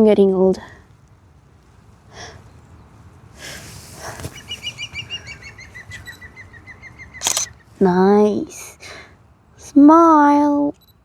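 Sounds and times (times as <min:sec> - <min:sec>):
short rustle: 0:00.8 - 0:06.3
small bird chirping: 0:04.1 - 0:07.8.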